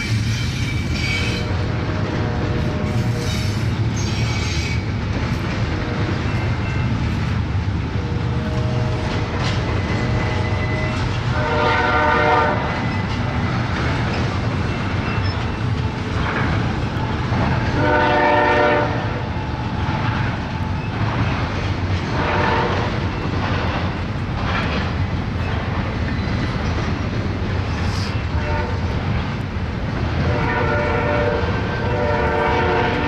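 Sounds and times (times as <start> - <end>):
freight train rumble and wheel clatter: 0.0 - 33.0
locomotive horn: 0.6 - 4.9, 7.9 - 12.8, 17.6 - 19.2, 22.1 - 23.0, 28.3 - 28.9, 30.2 - 33.0.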